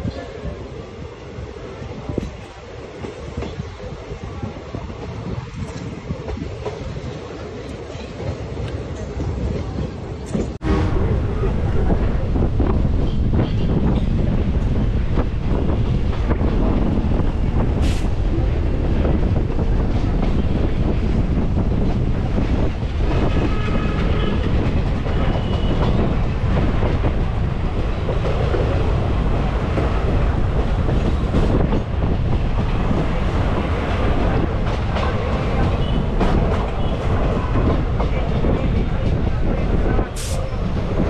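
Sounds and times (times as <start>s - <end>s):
train wheels rumbling: 0.0s - 41.0s
rushing air: 10.6s - 41.0s.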